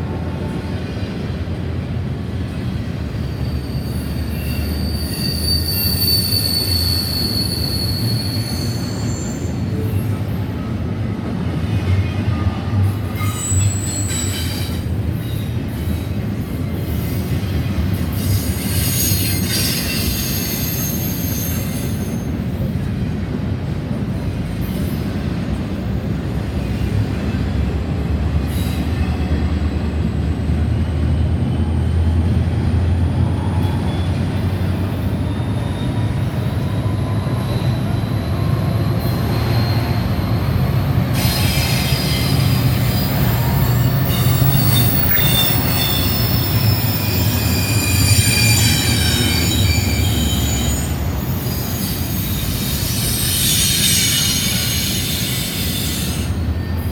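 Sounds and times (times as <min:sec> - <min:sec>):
freight train wheels rumbling: 0:00.0 - 0:56.9
high wheel squeals: 0:03.2 - 0:10.2, 0:13.1 - 0:15.6, 0:18.1 - 0:22.4, 0:33.2 - 0:56.9.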